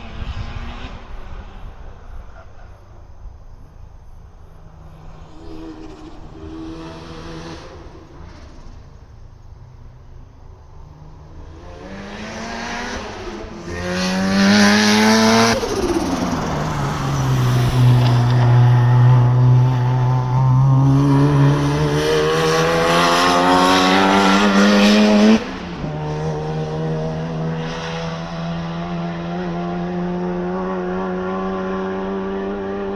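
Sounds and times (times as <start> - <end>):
rotary engine running hard: 14.0 - 19.3.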